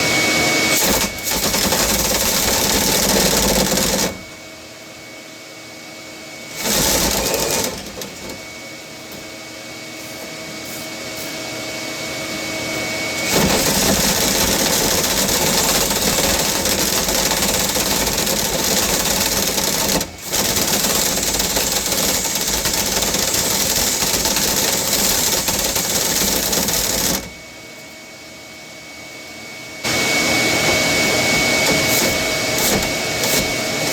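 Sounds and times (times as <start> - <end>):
vacuum motor whining: 0.0 - 4.4, 6.4 - 9.2, 11.8 - 27.5, 29.8 - 33.9.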